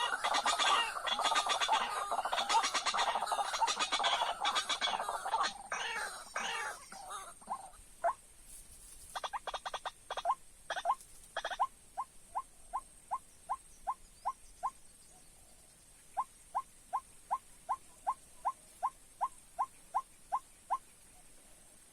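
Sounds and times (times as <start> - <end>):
bird clattering and kook calls: 0.0 - 14.8.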